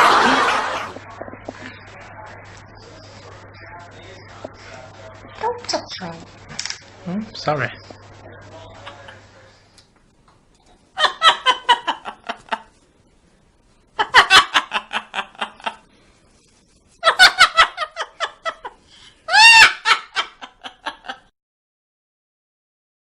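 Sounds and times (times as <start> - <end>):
loud cackling laughter: 0.0 - 0.9, 11.0 - 12.7, 14.0 - 15.8, 17.0 - 21.3.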